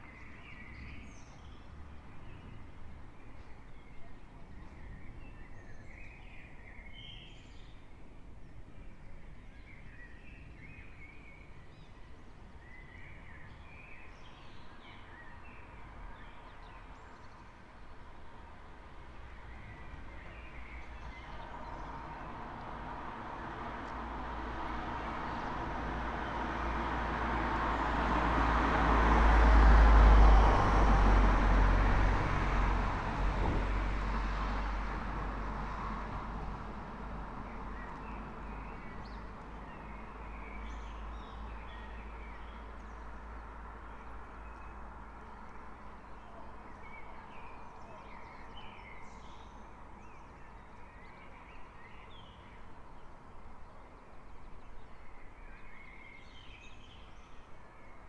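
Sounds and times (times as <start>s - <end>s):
vehicle passing: 21.7s - 41.6s.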